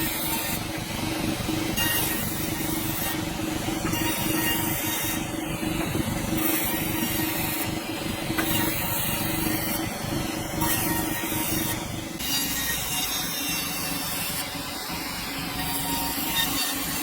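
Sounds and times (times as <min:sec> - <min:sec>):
machine hum: 0:00.0 - 0:17.0
saw blade cutting log: 0:01.8 - 0:05.2, 0:08.4 - 0:09.9, 0:10.5 - 0:14.4, 0:15.6 - 0:17.0.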